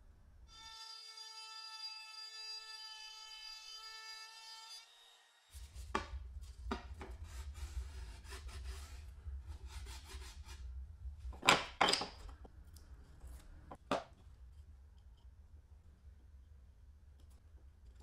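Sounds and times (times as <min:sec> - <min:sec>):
scraping strokes on wood: 0:05.6 - 0:10.6
low steady hum: 0:05.6 - 0:18.0.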